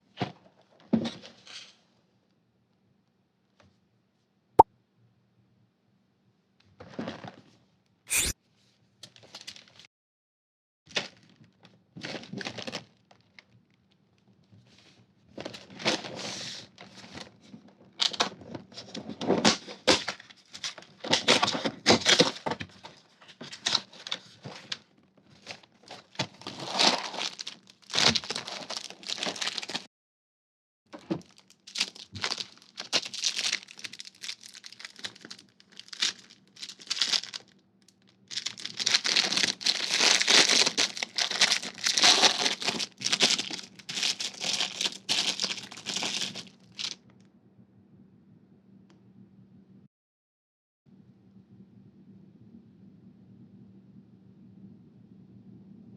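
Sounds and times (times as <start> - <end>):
plastic packaging crinkling and tearing: 10.9 - 13.6, 25.4 - 29.9, 31.0 - 47.0
cracking sounds: 30.9 - 47.0.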